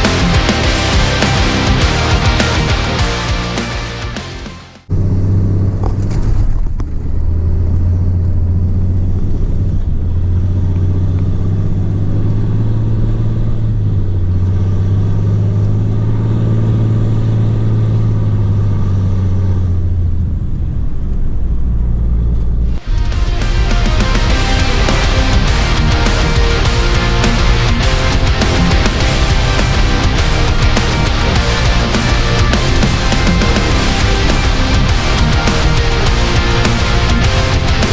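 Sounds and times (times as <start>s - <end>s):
music: 0.0s - 4.9s, 22.8s - 37.9s.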